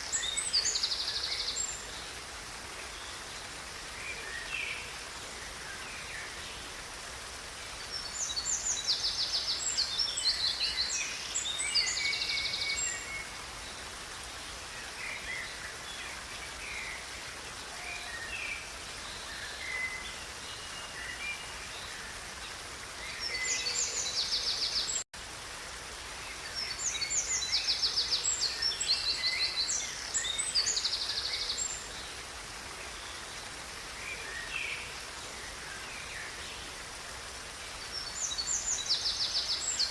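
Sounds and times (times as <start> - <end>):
songbirds singing: 0.0 - 25.1, 25.7 - 39.9
river rushing: 0.0 - 39.9.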